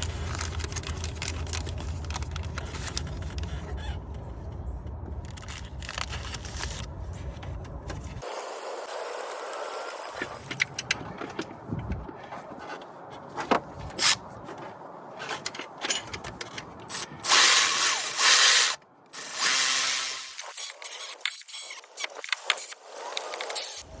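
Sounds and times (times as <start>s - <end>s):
ratchet clicking on metal: 15.9s - 23.9s.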